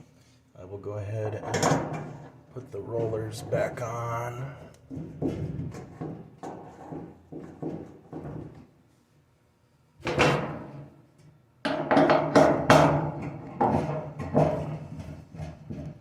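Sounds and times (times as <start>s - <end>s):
dryer parts knocking: 11.6s - 16.0s.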